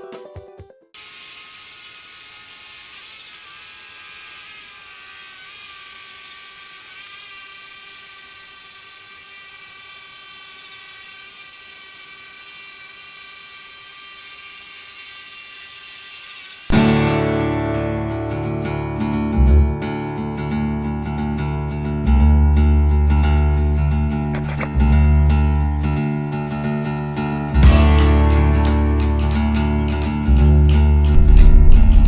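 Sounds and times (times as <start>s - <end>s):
drone motors whining: 19.4s - 19.8s, 23.4s - 26.8s, 29.9s - 32.0s.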